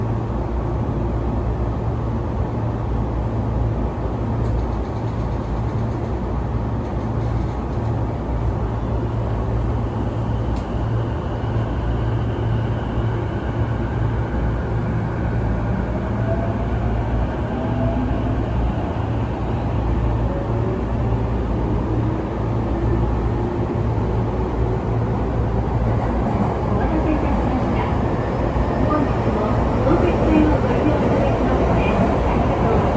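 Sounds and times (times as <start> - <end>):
train wheels rumbling: 23.2 - 32.9.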